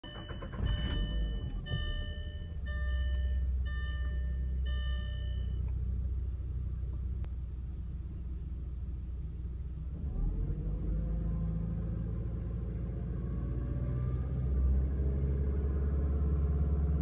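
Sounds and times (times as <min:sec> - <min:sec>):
warning beep: 0:00.0 - 0:05.6
car engine droning: 0:00.0 - 0:17.0.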